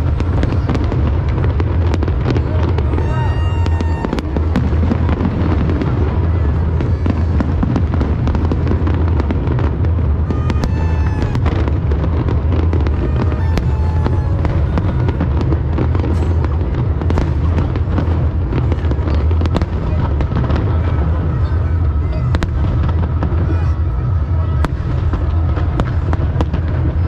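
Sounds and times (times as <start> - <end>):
booming shells rumble: 0.0 - 21.2
fireworks bangs and crackles: 0.0 - 27.0.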